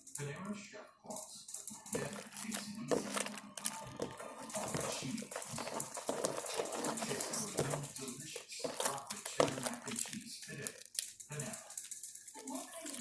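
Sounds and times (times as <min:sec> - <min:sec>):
hands kneading sticky slime: 0:01.8 - 0:11.8.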